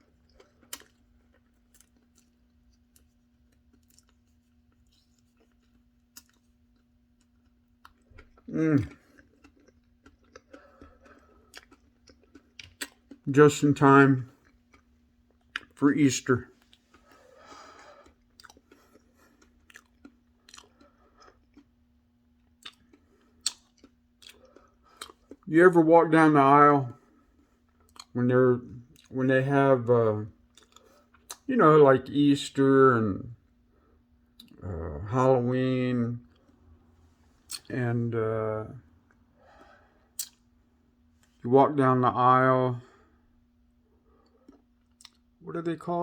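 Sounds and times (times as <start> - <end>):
person chewing: 0.0 - 13.6, 14.3 - 15.8, 16.5 - 25.5, 27.3 - 28.2, 30.4 - 31.5, 34.2 - 35.0, 37.3 - 37.8, 38.9 - 40.6, 43.9 - 45.4
faint steady hum: 0.0 - 46.0.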